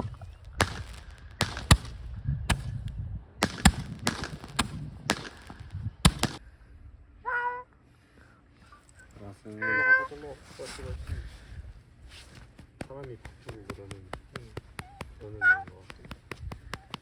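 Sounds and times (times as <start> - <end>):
small fireworks cracking: 0.0 - 6.4, 12.4 - 17.0.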